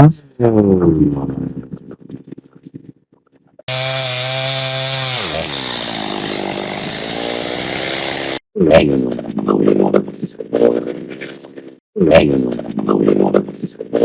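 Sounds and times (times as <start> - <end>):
chainsaw cutting log: 3.7 - 8.4.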